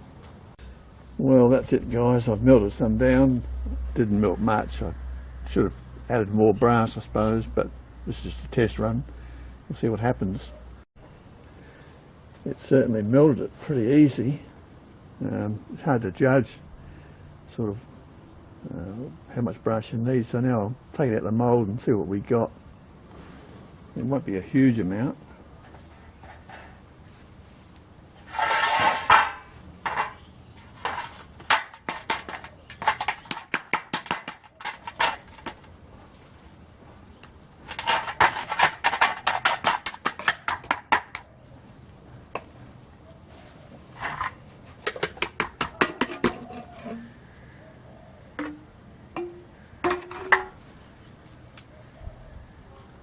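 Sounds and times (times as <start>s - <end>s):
metal casting scraping and clinking: 28.2s - 35.7s, 37.6s - 41.2s, 43.9s - 47.2s, 48.4s - 50.6s.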